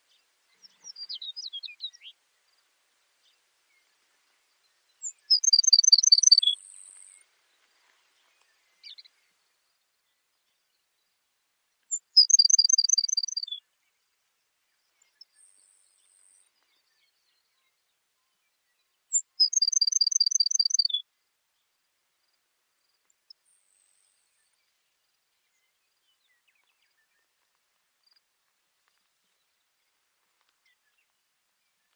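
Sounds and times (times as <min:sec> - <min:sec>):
sparrow singing trilled song: 0:00.0 - 0:02.2, 0:04.8 - 0:07.2, 0:11.9 - 0:13.9, 0:14.9 - 0:21.1.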